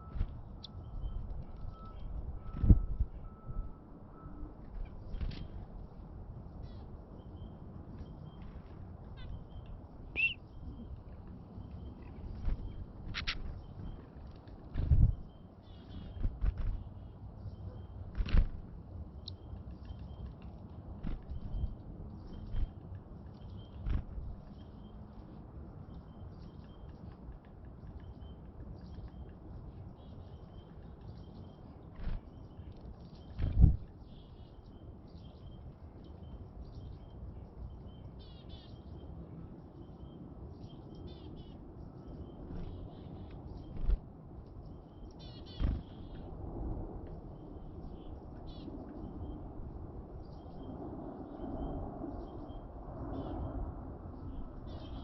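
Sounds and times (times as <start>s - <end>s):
small songbirds calling: 5.0s - 18.3s, 19.1s - 46.3s, 47.2s - 49.5s, 50.2s - 53.6s, 54.2s - 55.0s
chickadees chirping: 9.2s - 10.4s, 45.2s - 46.2s
steady low rumble: 41.6s - 55.0s.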